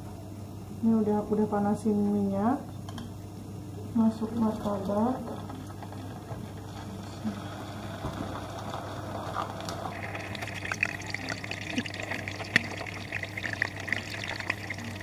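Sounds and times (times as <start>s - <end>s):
oil crackling and popping: 6.7s - 15.0s
food sizzling in hot oil: 7.2s - 15.0s.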